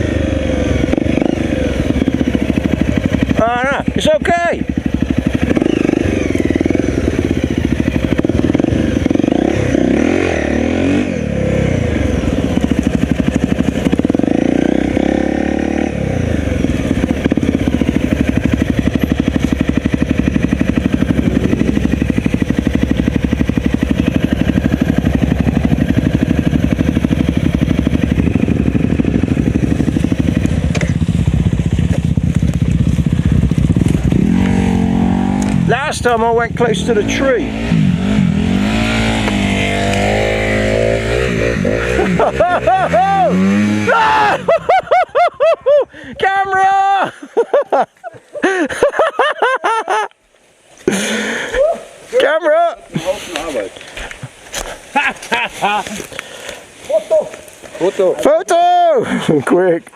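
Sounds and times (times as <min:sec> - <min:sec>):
motorcycle engine blipped: 0:00.0 - 0:44.0
motorcycle engine running: 0:00.0 - 0:45.6.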